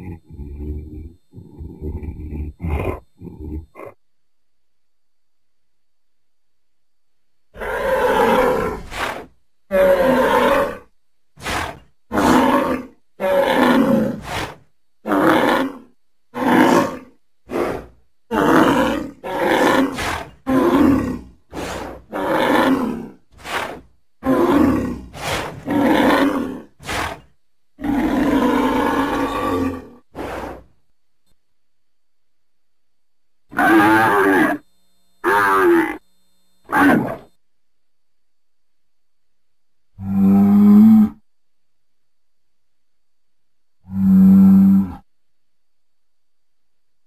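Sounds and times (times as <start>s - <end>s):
deep creature calls: 0.0s - 4.0s, 7.6s - 14.4s, 15.0s - 30.7s, 33.5s - 34.6s, 35.2s - 36.0s, 36.7s - 37.3s, 40.0s - 41.2s, 43.8s - 45.1s.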